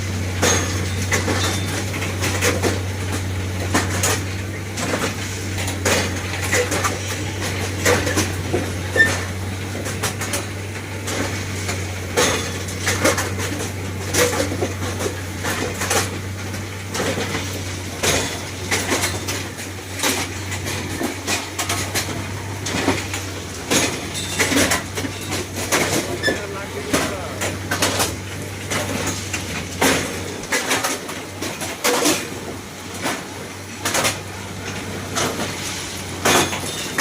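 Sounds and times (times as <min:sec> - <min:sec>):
metallic clanks and knocks: 0:36.2 - 0:37.0.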